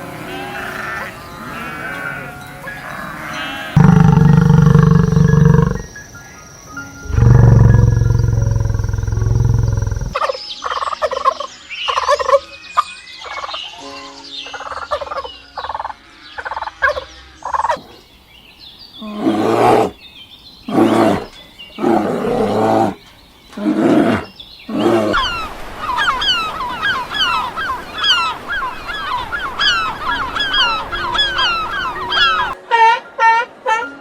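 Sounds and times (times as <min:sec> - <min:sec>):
animal gobbling calls: 0:00.3 - 0:05.9, 0:07.0 - 0:10.2, 0:23.6 - 0:33.8
loud hoarse animal calls: 0:00.3 - 0:05.9, 0:07.0 - 0:10.2, 0:20.7 - 0:23.0, 0:23.6 - 0:32.6
high chirps: 0:03.8 - 0:06.0, 0:06.8 - 0:10.2, 0:25.2 - 0:32.6.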